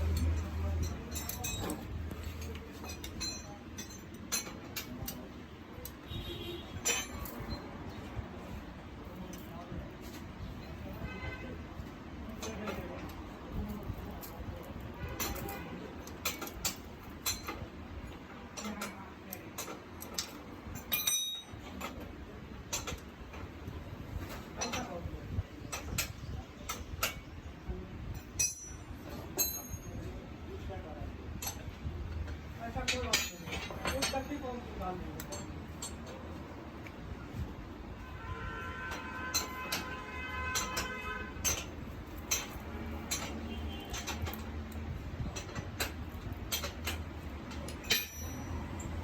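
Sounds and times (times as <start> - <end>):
ringing metal clink: 0.0 - 5.2, 6.8 - 7.6, 19.6 - 22.0, 28.2 - 30.2, 38.9 - 49.0
metallic clicks of hand tools: 0.0 - 6.1, 12.4 - 17.8, 18.5 - 22.1, 40.6 - 49.0.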